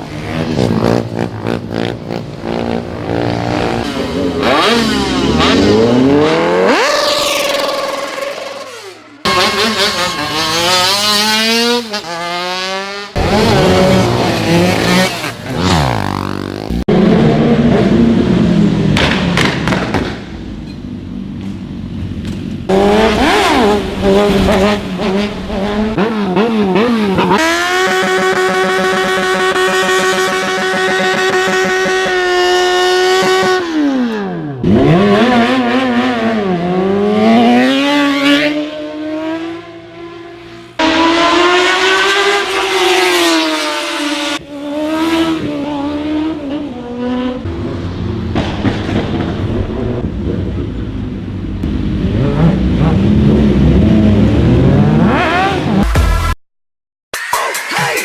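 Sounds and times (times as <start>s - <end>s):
superbike engines revving: 0.0s - 18.2s, 51.6s - 55.8s
motorbike passing by: 0.0s - 19.4s, 22.7s - 50.7s.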